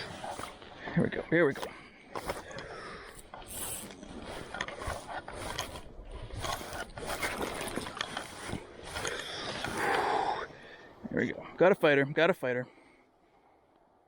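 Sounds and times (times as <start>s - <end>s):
fly reel ratchet clicking: 3.5s - 4.0s.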